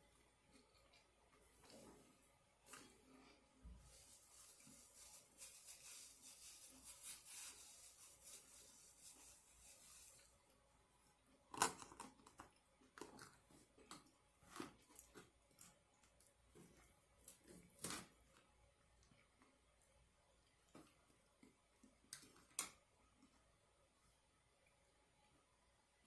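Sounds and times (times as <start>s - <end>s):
crinkling and rustling: 11.4s - 19.2s.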